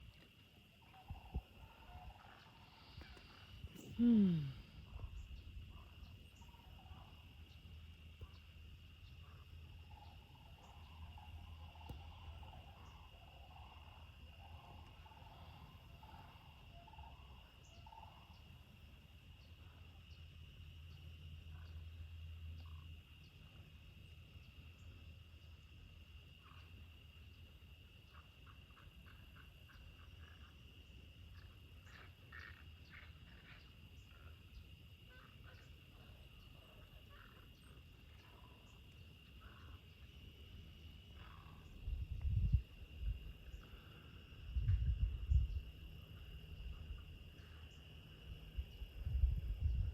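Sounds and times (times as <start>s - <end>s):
insect chirping calls: 0.0s - 49.9s
insect trilling: 0.9s - 8.5s.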